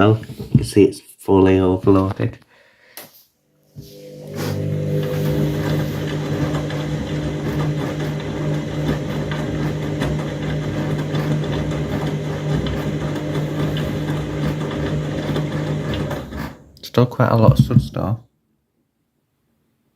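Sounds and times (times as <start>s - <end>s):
washing machine motor hum: 3.6s - 17.9s
drum churning suds: 4.2s - 16.6s.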